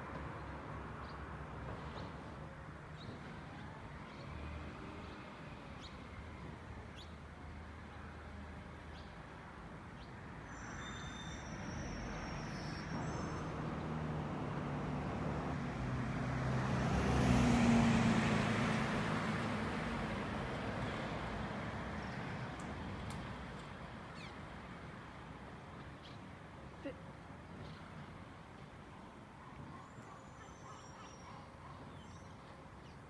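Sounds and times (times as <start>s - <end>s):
truck driving past: 12.8s - 23.4s.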